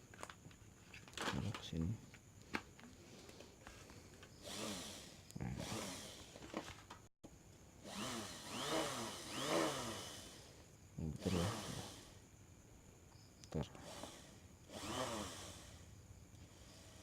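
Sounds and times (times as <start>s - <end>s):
motor whine rising and falling: 4.4s - 6.6s, 7.8s - 12.2s, 13.8s - 15.9s.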